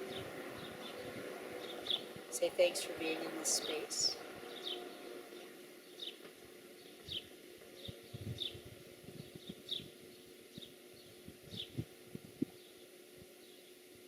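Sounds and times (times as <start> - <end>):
small bird chirping: 6.8 - 11.8.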